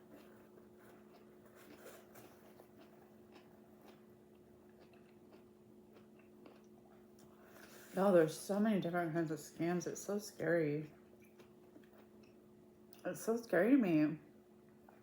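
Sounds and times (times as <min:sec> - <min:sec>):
faint chewing clicks: 0:00.0 - 0:07.8, 0:10.9 - 0:13.1
low steady hum: 0:00.0 - 0:15.0.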